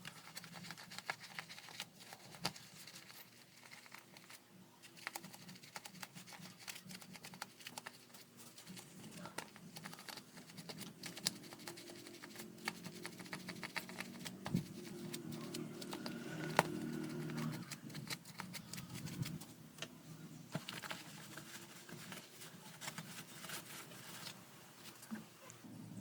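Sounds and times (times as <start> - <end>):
plastic fan parts clicking: 0.0 - 19.9
low rubbing noise: 11.1 - 24.9.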